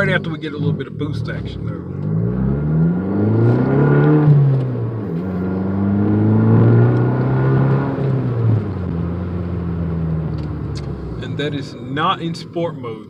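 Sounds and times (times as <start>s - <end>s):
car engine accelerating: 0.0s - 12.8s.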